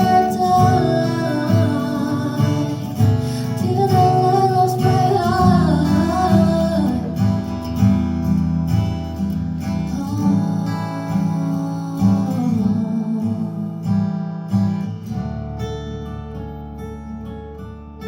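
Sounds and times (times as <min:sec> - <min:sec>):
person singing: 0:00.0 - 0:07.8, 0:09.9 - 0:13.8
acoustic guitar strumming chords: 0:00.0 - 0:18.0.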